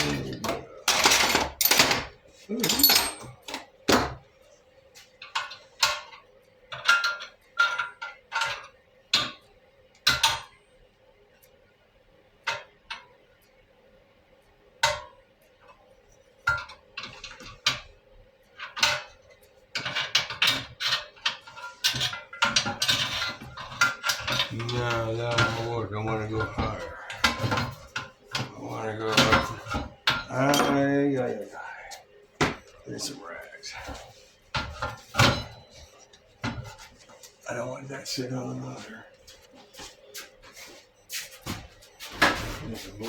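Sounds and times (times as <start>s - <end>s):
metal tools clinking: 0.0s - 3.6s, 19.8s - 31.4s
faint steady hum: 0.0s - 43.0s.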